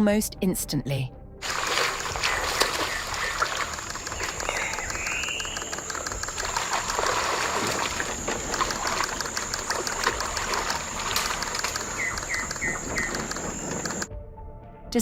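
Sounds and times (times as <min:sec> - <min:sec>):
water sloshing and splashing: 0:01.4 - 0:14.1.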